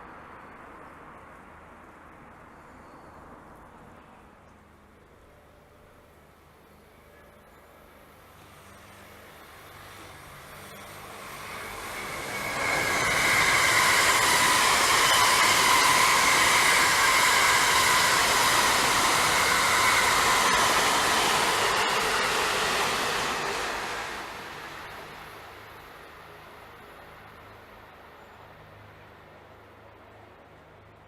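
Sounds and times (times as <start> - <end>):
train passing: 4.7 - 31.0
wheel-on-rail noise: 8.3 - 26.2.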